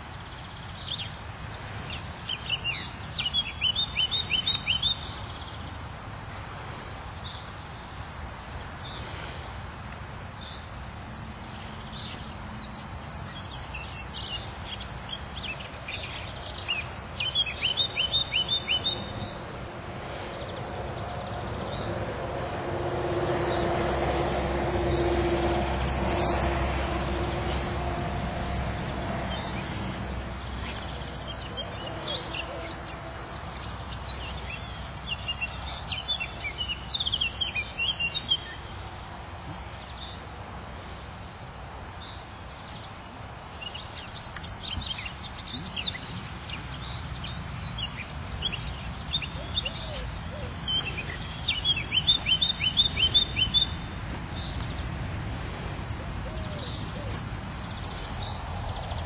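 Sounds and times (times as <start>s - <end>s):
outdoor background noise: 0.0s - 59.0s
small birds trilling: 11.5s - 38.8s, 42.0s - 59.0s
low hum: 18.4s - 34.2s.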